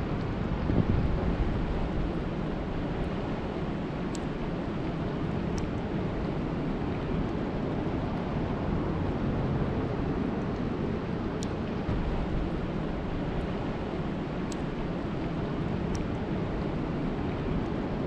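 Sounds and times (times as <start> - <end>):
steady rain falling: 0.0 - 18.0
faint drop ticks: 14.5 - 14.7.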